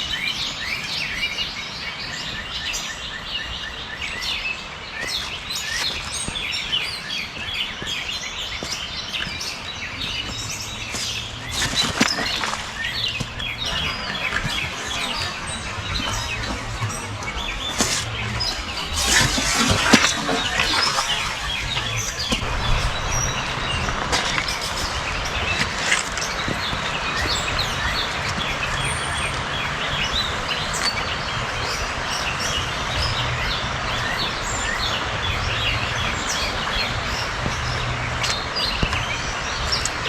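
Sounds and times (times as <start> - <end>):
small birds chirping: 0.0 - 40.0
low hum: 9.9 - 40.0.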